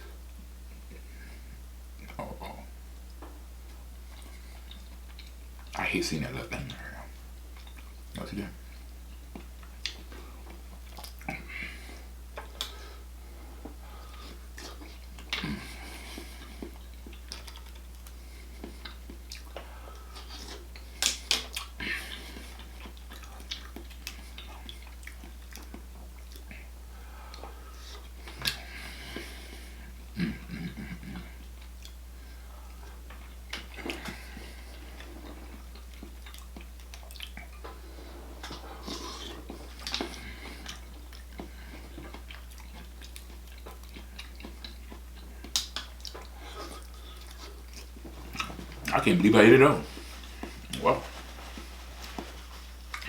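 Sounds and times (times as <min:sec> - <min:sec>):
chewing mussels: 0:03.0 - 0:53.0
wet mouth clicks and smacks: 0:12.4 - 0:12.8, 0:21.0 - 0:21.7, 0:42.1 - 0:48.6.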